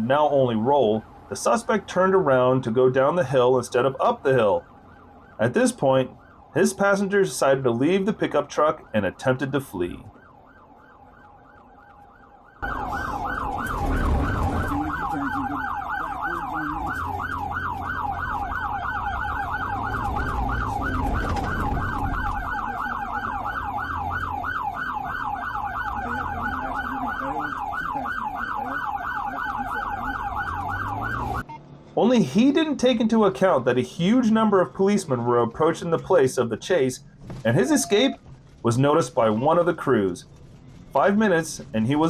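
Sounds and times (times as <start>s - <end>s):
vehicle low rumble: 0.0s - 42.0s
police siren yelp: 3.7s - 31.6s, 37.5s - 38.2s.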